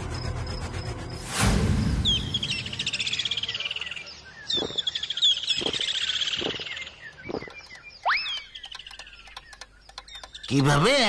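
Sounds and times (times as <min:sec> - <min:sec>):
short bird chirps: 0:02.0 - 0:10.5
songbird trills: 0:02.0 - 0:11.0.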